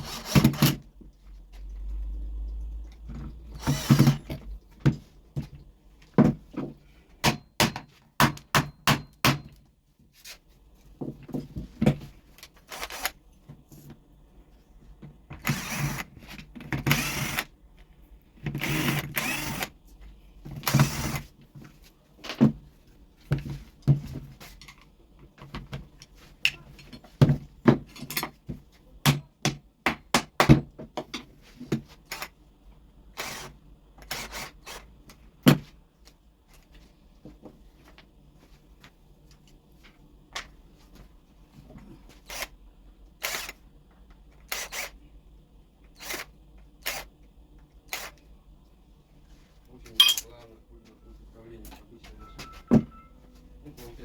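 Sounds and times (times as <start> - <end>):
tools clattering on workbench: 50.0 - 50.3.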